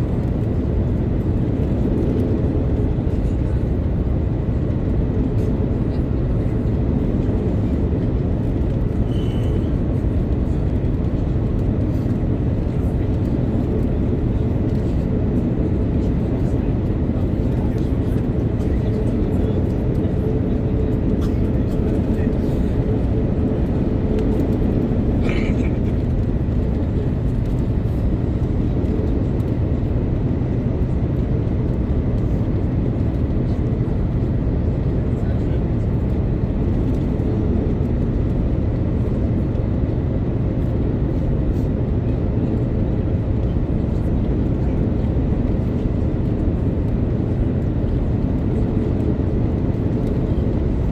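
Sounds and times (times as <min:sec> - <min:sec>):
airliner cabin engine rumble: 0:00.0 - 0:50.9.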